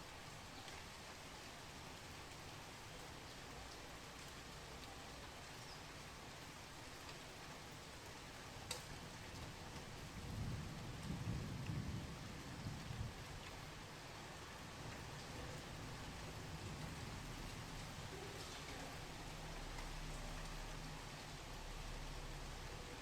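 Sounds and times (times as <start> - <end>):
steady rain falling: 0.0 - 23.0
sharp drip tick: 8.6 - 9.0
thunder rumbling: 10.0 - 13.7, 14.6 - 21.0.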